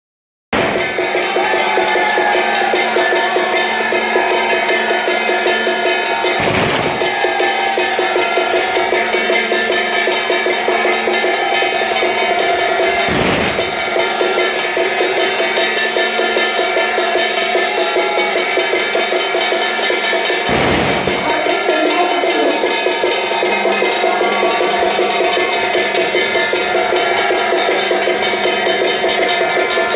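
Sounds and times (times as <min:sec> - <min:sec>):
drums: 0:00.5 - 0:01.8, 0:06.4 - 0:07.2, 0:12.9 - 0:14.3, 0:20.5 - 0:22.0
cymbals: 0:00.6 - 0:01.6, 0:06.4 - 0:07.4, 0:13.0 - 0:14.3, 0:20.5 - 0:22.0.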